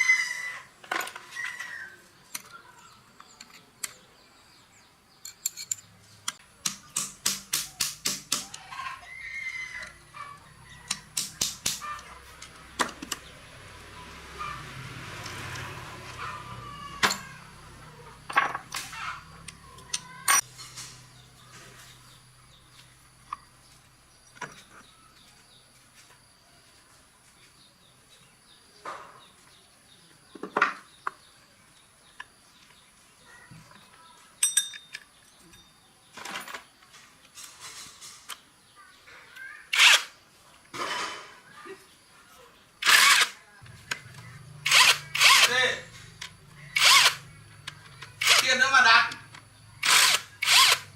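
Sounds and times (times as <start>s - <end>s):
metal tools clinking: 5.2s - 6.0s, 17.0s - 17.4s, 19.4s - 20.9s, 34.4s - 36.7s.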